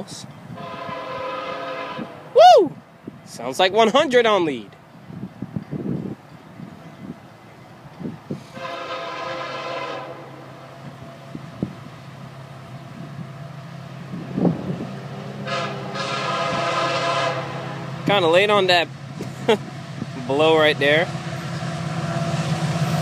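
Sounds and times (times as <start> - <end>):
train rumbling: 0.0 - 23.0
locomotive horn blasts: 0.5 - 2.3, 8.5 - 10.7, 15.4 - 18.1.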